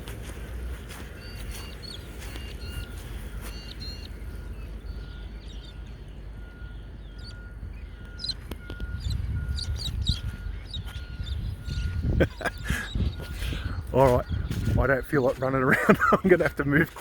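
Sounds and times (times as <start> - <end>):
birds chirping: 0.0 - 17.0
low rumble: 2.6 - 15.0.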